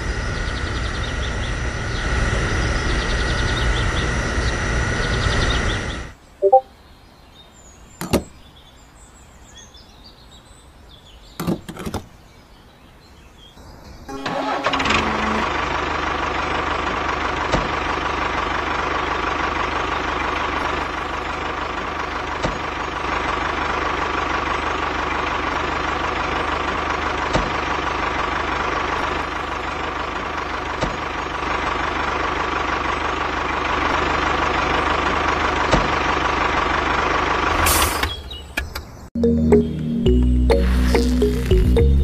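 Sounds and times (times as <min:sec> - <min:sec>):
tractor engine idling: 0:14.1 - 0:38.4.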